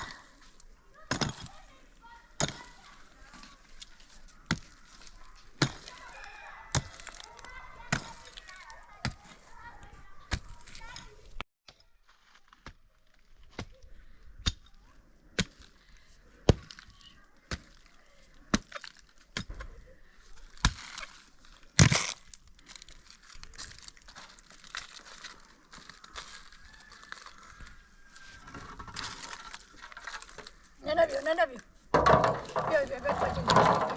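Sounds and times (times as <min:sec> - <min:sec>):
crackling rustle: 0:20.1 - 0:31.9.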